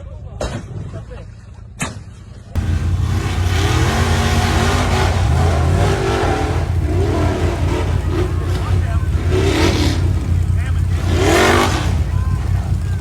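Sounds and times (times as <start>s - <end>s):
vehicle engine revving hard: 2.6s - 13.0s.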